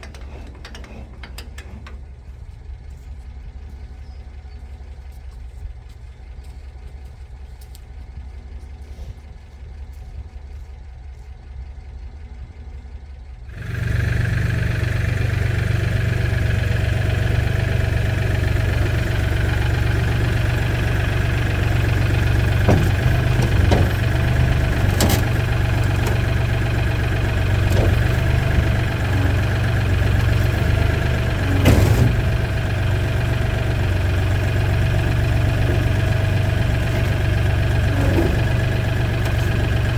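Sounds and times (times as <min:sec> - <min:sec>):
engine idling: 0:00.0 - 0:39.9
short knocks: 0:18.5 - 0:39.9.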